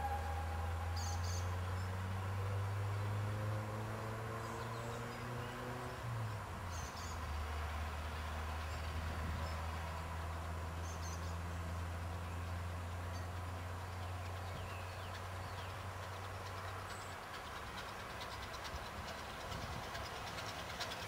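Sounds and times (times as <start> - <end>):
bird chirps: 0.0 - 2.0
distant train drone: 0.0 - 21.0.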